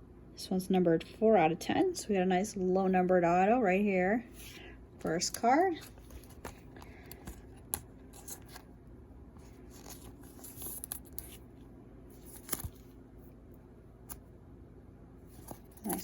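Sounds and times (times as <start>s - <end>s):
trading cards clicking and rustling: 5.1s - 8.7s, 9.4s - 11.5s, 12.2s - 12.9s, 15.3s - 16.0s.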